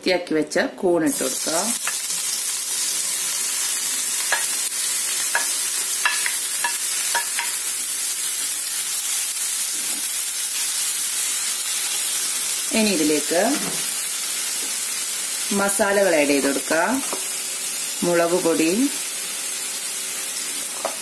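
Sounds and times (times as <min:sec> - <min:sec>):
mushrooms sizzling in oil: 0:01.0 - 0:21.0
spatula tapping: 0:05.3 - 0:07.6.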